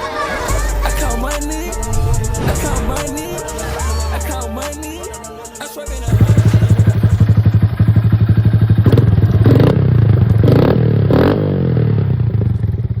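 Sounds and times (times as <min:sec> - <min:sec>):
motorcycle engine idling and revving: 0:06.1 - 0:13.0.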